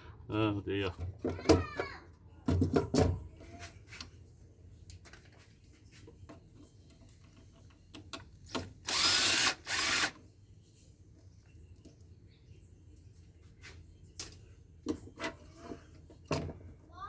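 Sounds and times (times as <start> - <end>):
power drill backing out screws: 8.9 - 10.1.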